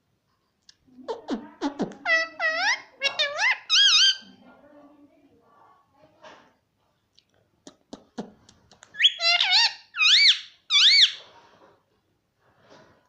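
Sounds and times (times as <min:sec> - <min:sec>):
parrot high-pitched calls: 0:02.0 - 0:04.3, 0:08.9 - 0:11.3.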